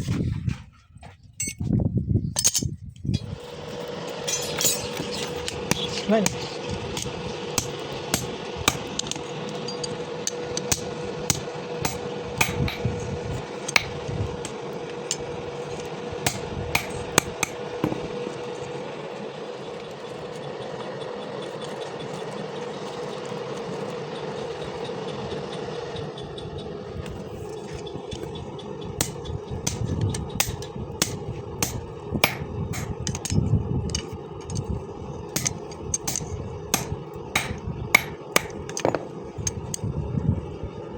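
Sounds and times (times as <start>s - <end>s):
steady hum: 3.1s - 40.9s
hammer striking steel: 4.2s - 6.4s, 7.0s - 15.3s, 16.2s - 18.4s, 29.0s - 33.4s, 35.4s - 39.2s.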